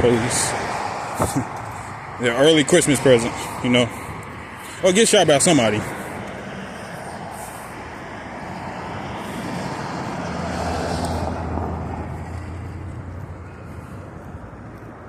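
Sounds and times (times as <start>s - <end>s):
vehicle driving past: 5.9s - 14.7s.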